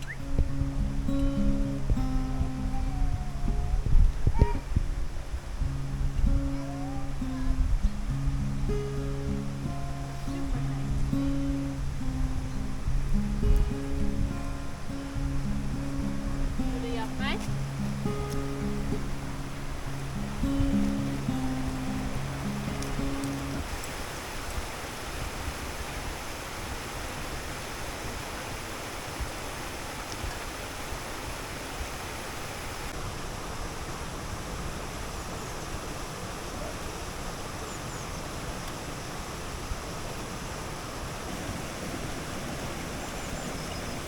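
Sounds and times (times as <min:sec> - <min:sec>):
running water rushing: 0:00.0 - 0:44.0
faint ticks: 0:22.7 - 0:24.6.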